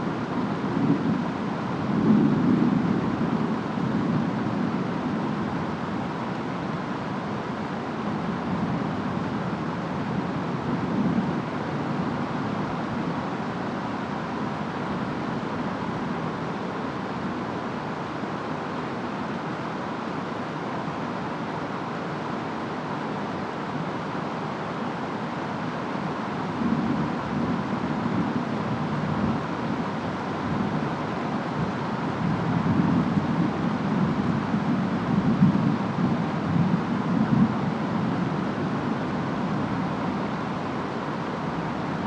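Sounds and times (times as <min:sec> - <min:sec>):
rain: 0:00.0 - 0:42.0
wind: 0:00.0 - 0:42.0.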